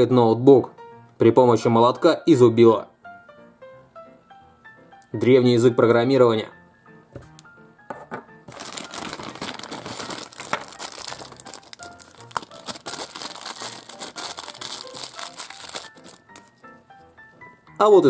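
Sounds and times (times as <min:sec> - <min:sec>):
quiet background music: 0:00.0 - 0:18.0
plastic bag crinkling: 0:08.5 - 0:16.6.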